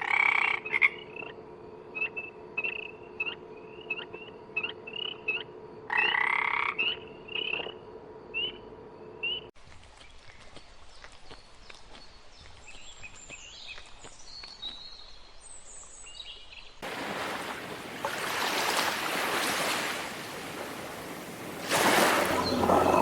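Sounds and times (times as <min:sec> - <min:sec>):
faint bird chirps: 0:20.6 - 0:23.0.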